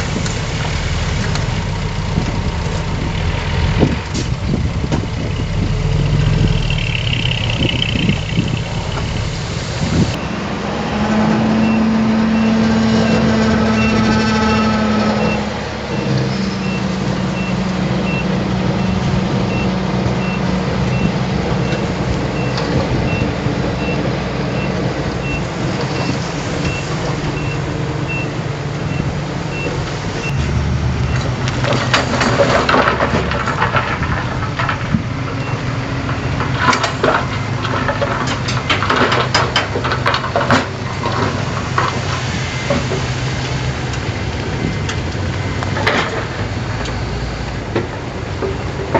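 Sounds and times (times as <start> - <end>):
truck diesel engine running: 0.0 - 48.9
reversing alarm beeping: 10.2 - 31.8
clattering knocks: 29.6 - 43.2.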